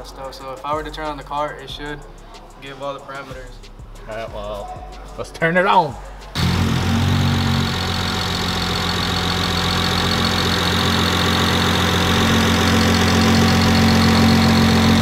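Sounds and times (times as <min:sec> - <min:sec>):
car engine idling: 0:06.3 - 0:15.0.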